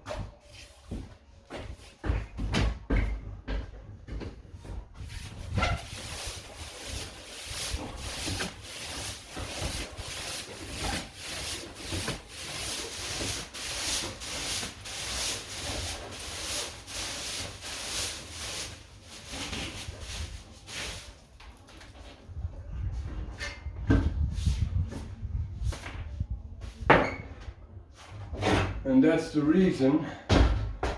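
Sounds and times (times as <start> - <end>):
wire brush scraping stone wall: 5.1 - 21.2.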